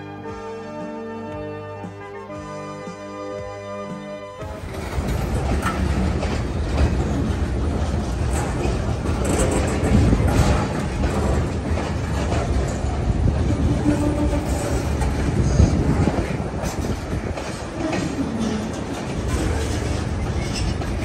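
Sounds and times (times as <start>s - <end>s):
train wheels rumbling on rails: 4.4s - 21.0s
wheels clicking over rail joints: 4.4s - 21.0s.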